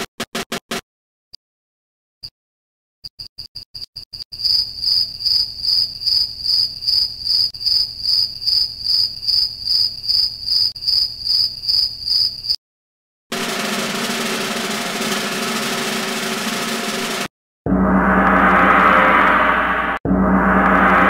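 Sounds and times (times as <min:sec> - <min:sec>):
cricket trilling: 0:03.1 - 0:12.6.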